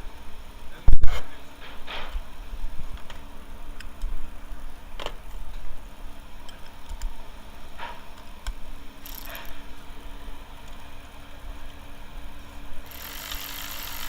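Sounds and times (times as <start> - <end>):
steady low rumble: 0.0 - 12.9
light clicks and taps: 6.4 - 7.2.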